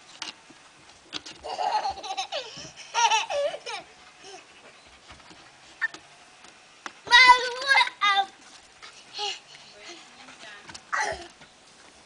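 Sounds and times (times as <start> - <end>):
young child laughing and squealing: 1.4 - 4.4.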